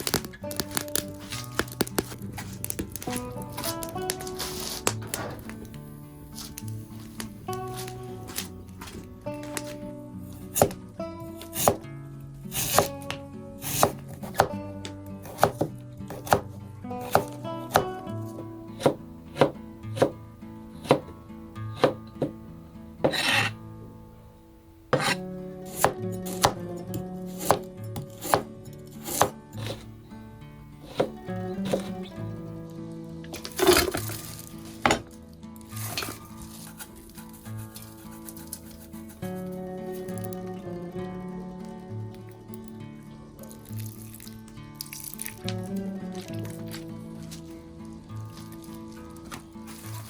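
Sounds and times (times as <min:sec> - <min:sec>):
background music: 0:00.0 - 0:50.0
knife scraping board: 0:10.4 - 0:10.8, 0:11.4 - 0:11.8, 0:12.5 - 0:13.0, 0:13.6 - 0:14.6, 0:15.2 - 0:18.0, 0:18.8 - 0:20.2, 0:20.8 - 0:21.1, 0:21.8 - 0:22.3, 0:23.0 - 0:23.6, 0:25.0 - 0:26.6, 0:27.3 - 0:29.9, 0:30.8 - 0:32.1, 0:33.4 - 0:35.0, 0:35.8 - 0:39.5
knife chopping on cutting board: 0:10.5 - 0:10.8, 0:11.5 - 0:11.8, 0:12.5 - 0:13.0, 0:13.6 - 0:14.6, 0:15.2 - 0:20.2, 0:20.8 - 0:21.1, 0:21.8 - 0:22.4, 0:23.0 - 0:23.5, 0:25.0 - 0:26.6, 0:27.3 - 0:29.9, 0:30.8 - 0:32.0.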